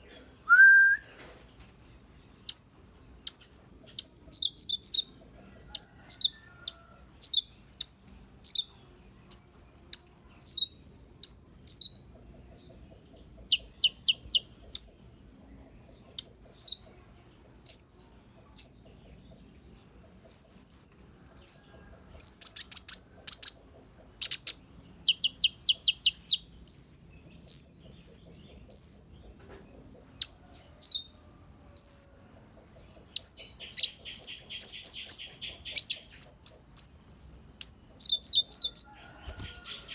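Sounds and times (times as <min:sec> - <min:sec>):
songbird chirps and whistles: 0:00.4 - 0:01.4, 0:02.4 - 0:05.1, 0:06.1 - 0:08.7, 0:09.3 - 0:12.0, 0:13.5 - 0:15.0, 0:16.1 - 0:16.9, 0:17.6 - 0:18.8, 0:22.2 - 0:23.6, 0:24.2 - 0:29.2, 0:31.8 - 0:32.2, 0:33.0 - 0:37.0, 0:37.6 - 0:39.9
buzzy bird chatter: 0:02.0 - 0:16.9, 0:22.2 - 0:30.4, 0:32.6 - 0:39.9.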